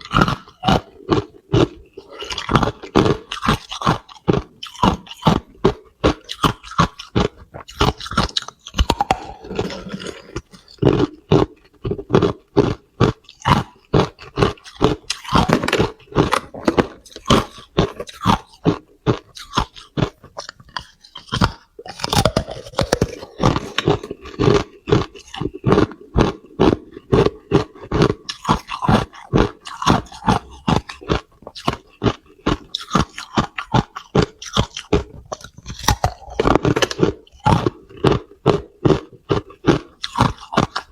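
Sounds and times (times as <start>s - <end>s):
ice being chewed: 0.0s - 40.9s.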